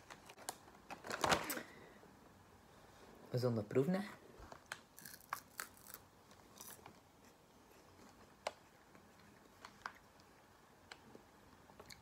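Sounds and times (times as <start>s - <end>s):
crunchy snack chewing: 5.0s - 6.9s.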